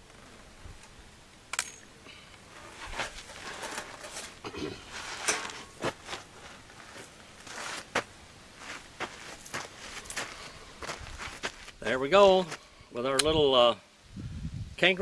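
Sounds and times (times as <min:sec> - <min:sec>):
rustling handling noise: 0:02.4 - 0:11.8.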